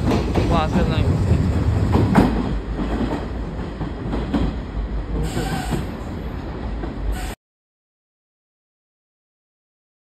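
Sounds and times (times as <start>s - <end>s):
train wheels rumbling on rails: 0.0s - 7.4s
train wheel screech: 5.2s - 6.0s, 7.1s - 7.4s.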